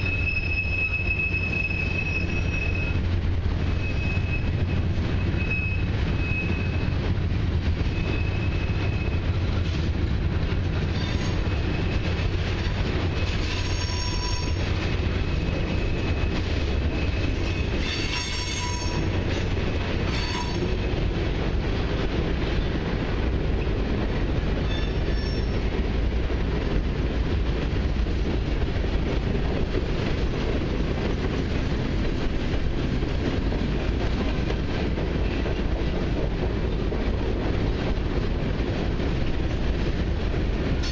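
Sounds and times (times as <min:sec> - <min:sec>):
high-pitched metal squeals: 0:00.0 - 0:03.1, 0:13.3 - 0:14.6, 0:17.0 - 0:19.1, 0:20.1 - 0:20.7, 0:24.6 - 0:25.6
train wheels rumbling on rail: 0:00.0 - 0:40.9.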